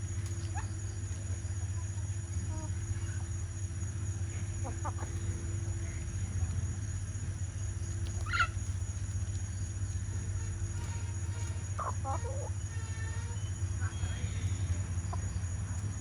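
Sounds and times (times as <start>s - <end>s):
insect drone: 0.0s - 16.0s
steady low hum: 0.0s - 16.0s
chicken clucking: 4.4s - 5.5s, 8.0s - 8.8s, 11.4s - 12.6s, 13.9s - 16.0s
chicken squawk: 4.6s - 5.3s, 8.1s - 8.7s, 10.8s - 13.6s.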